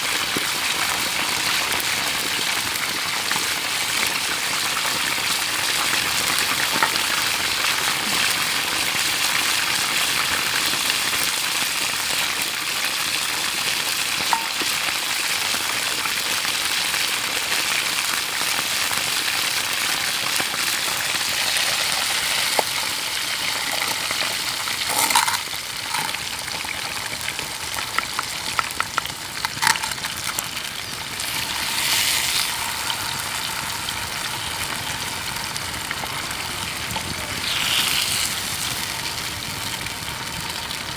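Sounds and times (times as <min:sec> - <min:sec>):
food sizzling in a pan: 0:00.0 - 0:40.9
utensil clicking against pan: 0:27.8 - 0:30.3.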